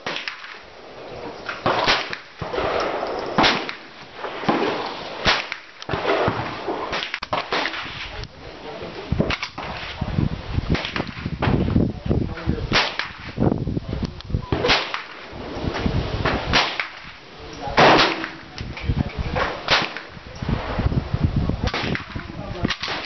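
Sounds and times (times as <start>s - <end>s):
rifle shots echoing: 1.5s - 8.1s, 12.7s - 13.3s, 14.6s - 15.3s, 16.3s - 17.2s, 17.8s - 18.6s, 19.6s - 20.2s, 21.7s - 23.0s.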